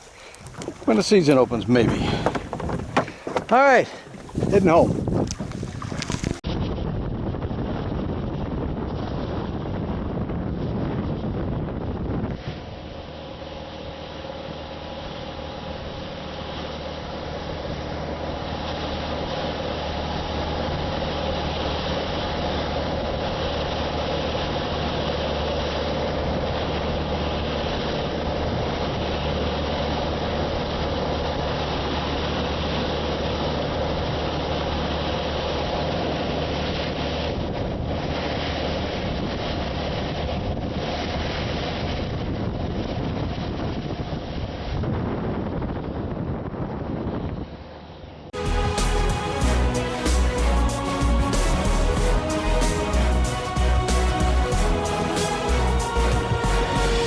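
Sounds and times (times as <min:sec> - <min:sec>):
outboard engine running: 0:00.0 - 0:44.0
wind on microphone: 0:00.0 - 0:49.9.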